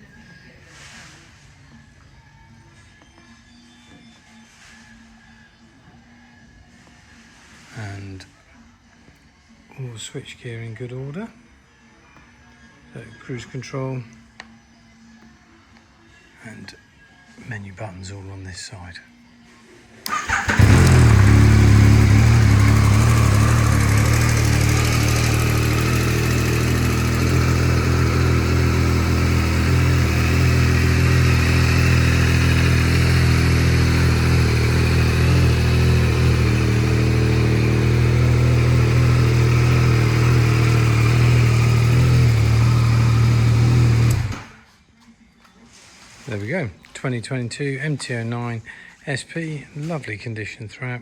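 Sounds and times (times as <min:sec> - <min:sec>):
motorcycle engine starting and idling: 0:20.0 - 0:44.7.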